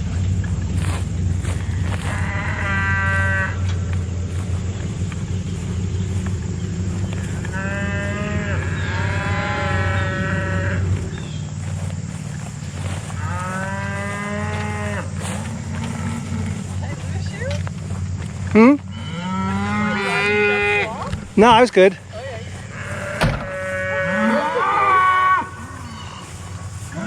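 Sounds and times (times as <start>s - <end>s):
steady low hum: 0.0s - 27.0s
cattle mooing: 1.5s - 4.0s, 6.6s - 11.4s, 12.8s - 17.6s, 18.4s - 21.4s, 22.1s - 27.0s.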